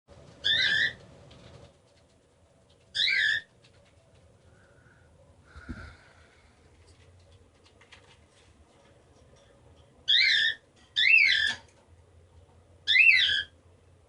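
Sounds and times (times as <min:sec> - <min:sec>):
cockatiel warbling chirps: 0:00.4 - 0:01.0, 0:02.9 - 0:03.5, 0:10.1 - 0:11.6, 0:12.9 - 0:13.6.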